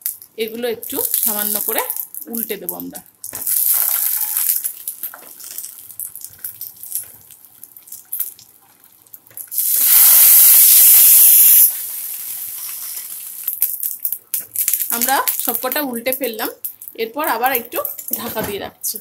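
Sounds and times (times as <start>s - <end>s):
patties sizzling in frying pan: 0.0s - 18.2s
loud burst of hissing: 9.6s - 12.6s.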